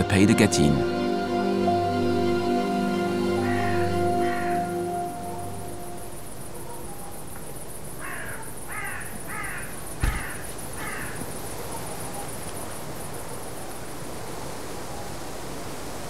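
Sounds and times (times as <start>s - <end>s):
insect chirring: 2.5s - 14.4s
bird cawing: 3.3s - 5.8s, 8.0s - 12.3s
dull thump: 10.0s - 10.4s.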